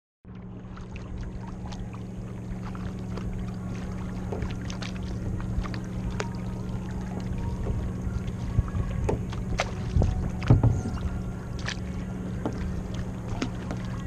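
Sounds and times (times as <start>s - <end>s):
paddle splashes and drips: 0.3s - 14.0s
steady low hum: 0.3s - 14.0s.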